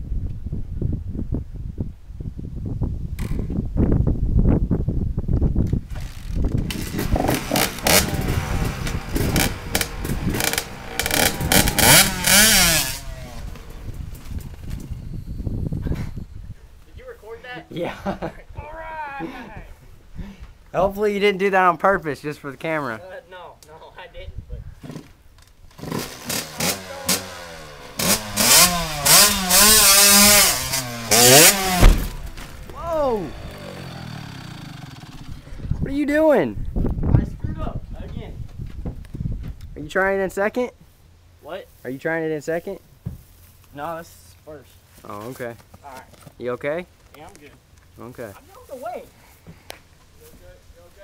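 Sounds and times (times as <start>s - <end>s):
dirt bike engine revving: 5.9s - 14.9s, 25.7s - 35.6s
engine pops: 28.0s - 32.8s.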